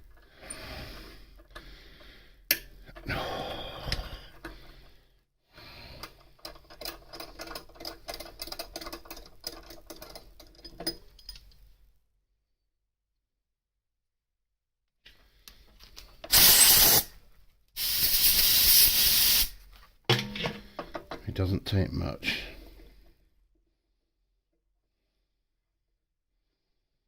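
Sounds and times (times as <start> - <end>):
threading tap clicking and creaking: 6.0 - 11.6.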